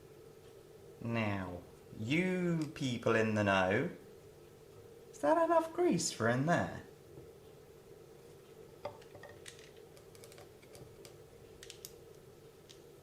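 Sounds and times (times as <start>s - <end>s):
faint steady hum: 0.0s - 13.0s
light clicks of small parts handled: 8.9s - 12.9s.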